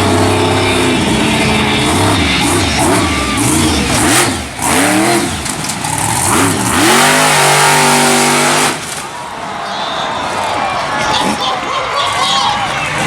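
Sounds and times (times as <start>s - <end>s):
monster truck engine revving: 0.0s - 9.4s.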